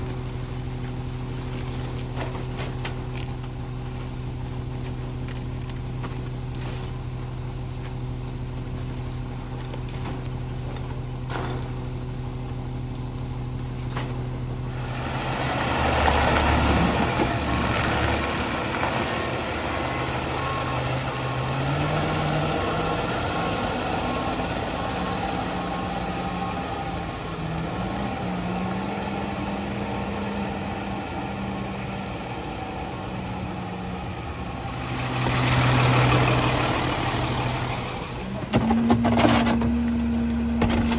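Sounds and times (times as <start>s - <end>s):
truck diesel engine idling and revving: 0.0s - 40.9s.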